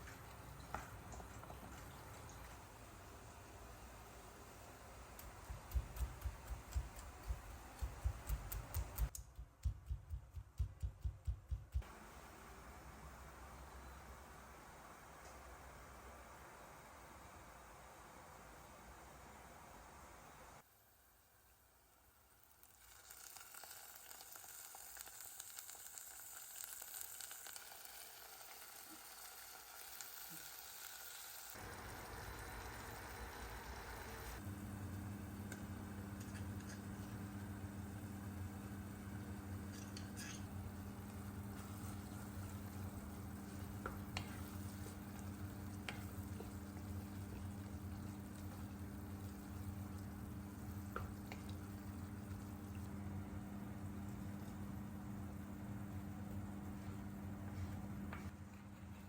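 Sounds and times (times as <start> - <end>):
food sizzling in a pan: 11.9 - 58.3.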